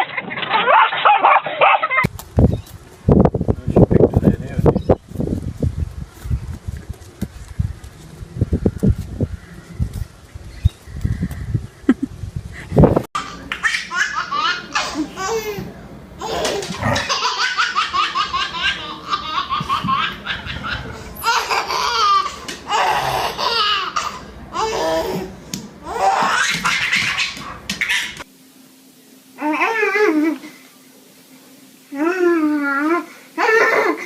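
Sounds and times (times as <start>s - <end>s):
high-pitched laughter: 0.0s - 2.1s, 11.8s - 12.2s, 32.5s - 34.0s.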